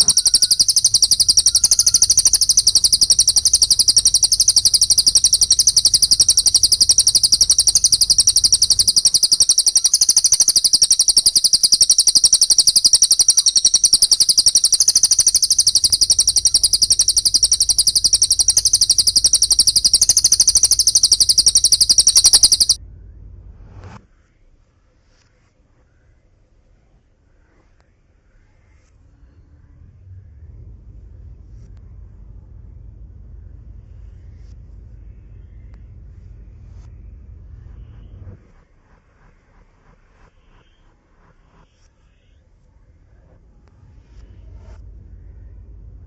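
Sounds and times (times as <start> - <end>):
songbird shrill fast notes: 0.0 - 22.8.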